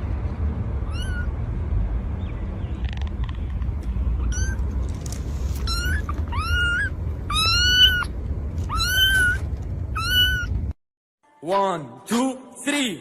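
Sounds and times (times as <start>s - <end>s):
low rumble: 0.0s - 10.8s
cat meowing: 0.8s - 1.3s, 4.2s - 4.7s, 5.5s - 10.7s.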